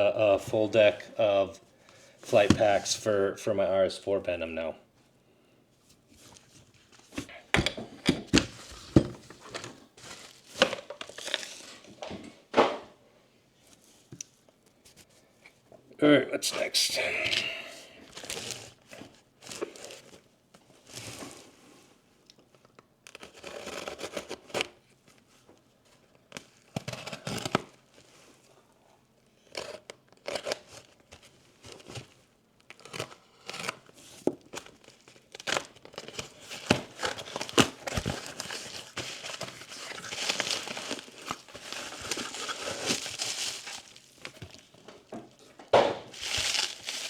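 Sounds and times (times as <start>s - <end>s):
plastic packaging crinkling and tearing: 9.4s - 11.9s, 29.5s - 45.1s, 46.1s - 47.0s.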